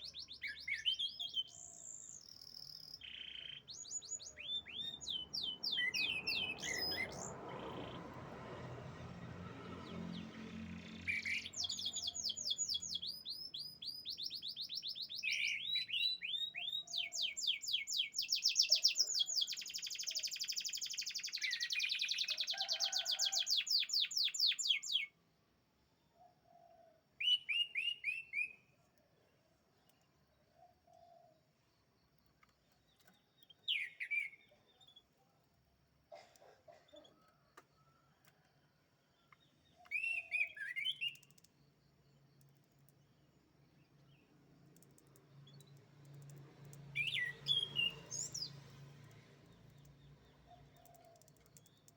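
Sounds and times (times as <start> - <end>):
canary singing rapid trills: 0.0 - 8.0.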